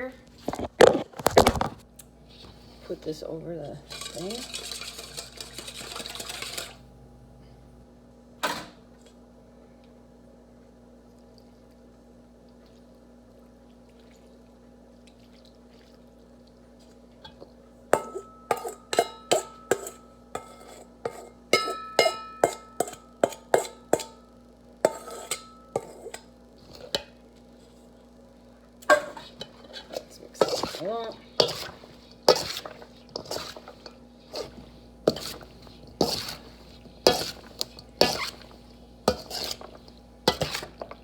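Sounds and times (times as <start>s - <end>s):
spoon clinking against a bowl: 18.0s - 24.2s.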